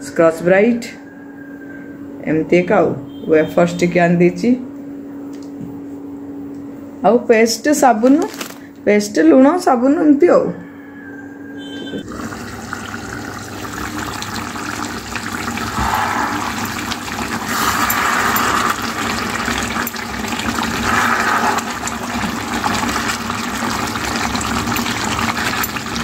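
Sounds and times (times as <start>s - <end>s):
chicken sizzling and bubbling: 12.0s - 26.0s.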